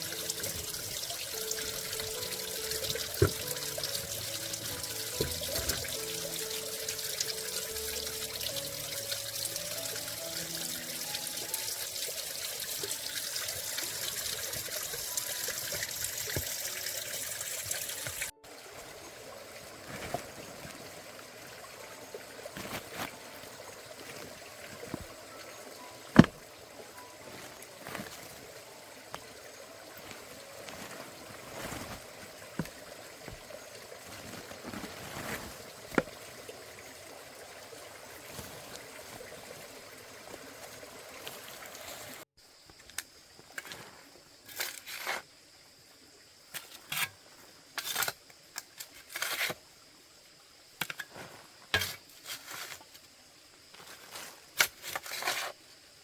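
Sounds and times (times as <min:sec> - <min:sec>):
soft background music: 0:00.0 - 0:36.4
water trickling: 0:00.0 - 0:42.3.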